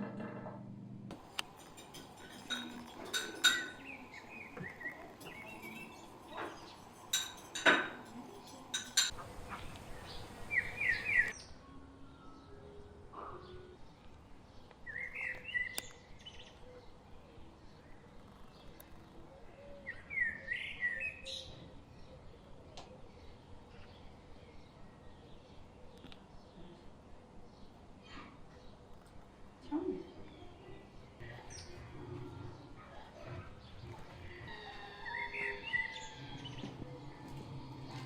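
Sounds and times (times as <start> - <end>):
sharp clinks and knocks: 1.1 - 9.2
bird chirping rising notes: 9.5 - 11.4.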